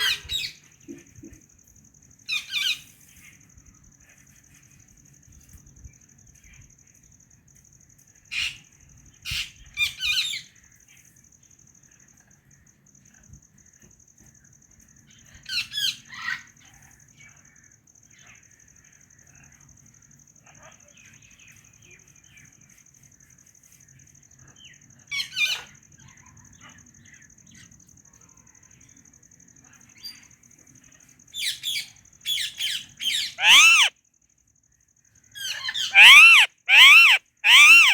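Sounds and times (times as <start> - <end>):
parakeet loud sharp call: 33.4 - 33.9, 35.8 - 37.9
parrot squawking: 33.4 - 33.9, 35.8 - 37.9
parrot warbling chatter: 33.4 - 33.9, 35.6 - 37.9.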